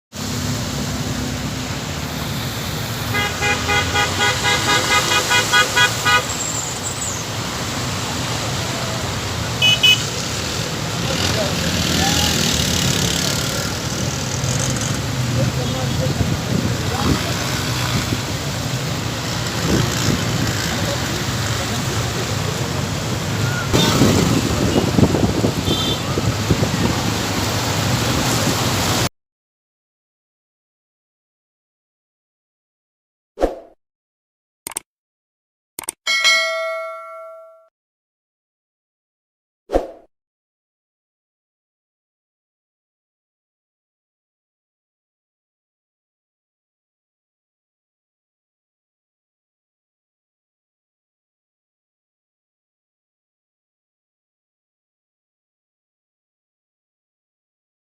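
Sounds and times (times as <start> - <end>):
rushing street noise: 0.1 - 29.1
vehicle horn tooting: 3.1 - 6.5, 9.6 - 10.1, 25.6 - 26.3
heavy rain pouring: 15.5 - 29.1
wind noise on microphone: 19.6 - 20.6, 23.7 - 29.0.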